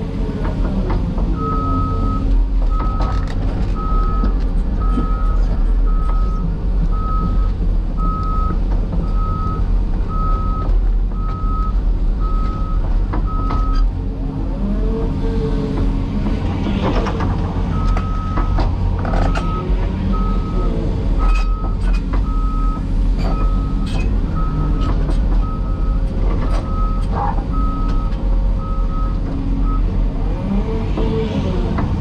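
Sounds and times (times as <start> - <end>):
heavy diesel machinery running: 0.0 - 32.0
backup alarm beeping: 3.8 - 10.6.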